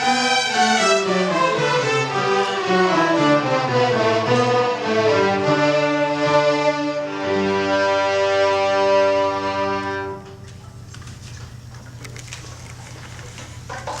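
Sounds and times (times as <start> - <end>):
bowed strings playing classical music: 0.0 - 10.4.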